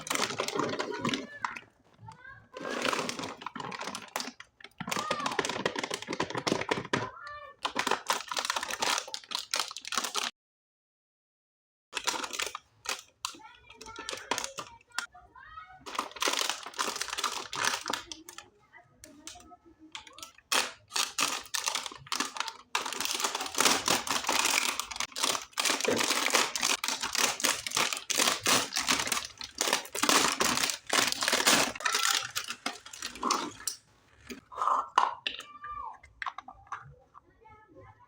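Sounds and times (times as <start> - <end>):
packaging crinkling and tearing: 0.0 - 1.6, 2.6 - 10.3, 12.0 - 15.1, 15.9 - 18.4, 20.0 - 34.4.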